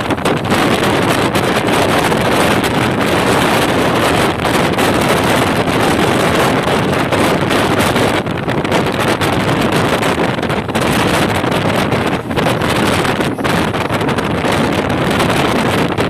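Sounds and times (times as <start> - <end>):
train rushing at high speed: 0.0 - 16.0
wind buffeting microphone: 0.0 - 16.0.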